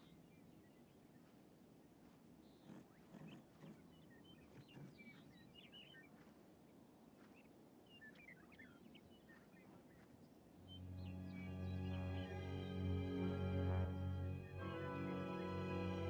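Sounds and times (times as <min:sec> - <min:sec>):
faint bird chirps: 0:00.0 - 0:12.2.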